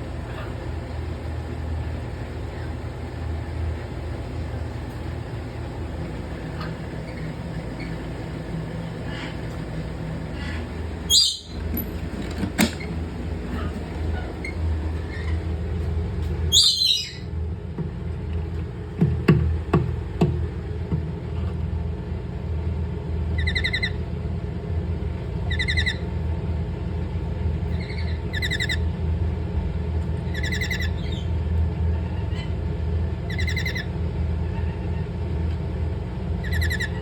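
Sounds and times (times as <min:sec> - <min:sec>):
steady low hum: 0:00.0 - 0:37.0
parrot squawking: 0:10.3 - 0:11.7, 0:16.5 - 0:17.3, 0:23.4 - 0:24.0, 0:25.4 - 0:26.1, 0:27.7 - 0:29.0, 0:30.2 - 0:31.3, 0:33.2 - 0:35.2, 0:36.4 - 0:37.0.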